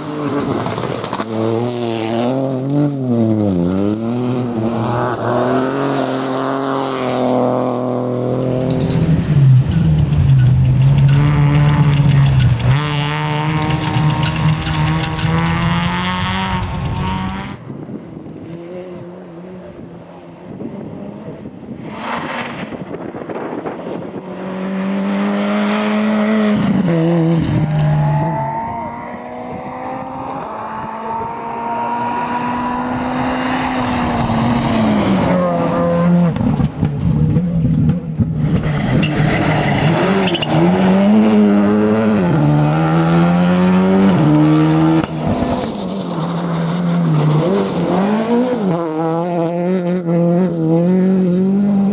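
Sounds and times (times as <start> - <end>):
rally car engines revving: 0.0 - 51.9
tyre squeal: 38.6 - 41.5.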